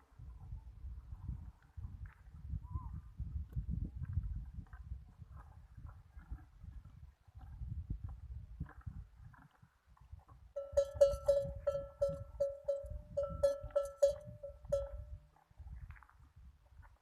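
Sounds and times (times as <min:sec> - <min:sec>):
bell-like ringing note: 0:10.6 - 0:15.2.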